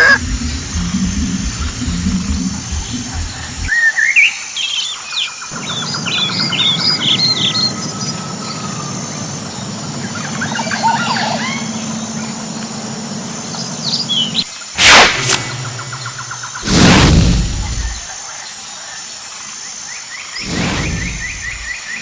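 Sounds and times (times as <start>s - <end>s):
steady low hum: 0.0s - 3.7s, 5.6s - 18.1s, 20.4s - 21.8s
birds chirping: 5.5s - 14.5s, 20.4s - 22.0s.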